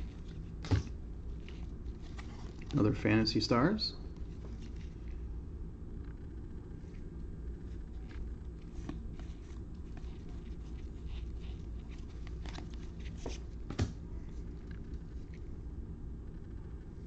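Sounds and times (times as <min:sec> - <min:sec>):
low room hum: 0:00.0 - 0:17.0
trading cards rustling and clicking: 0:07.6 - 0:13.8.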